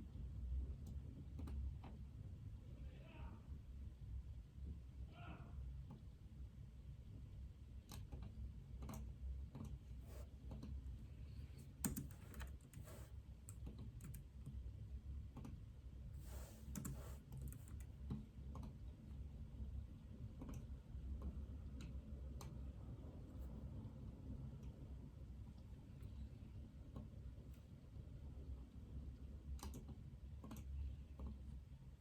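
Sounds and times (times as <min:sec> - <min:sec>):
typing on keyboard: 0:11.6 - 0:14.6, 0:16.5 - 0:18.7, 0:29.6 - 0:30.6.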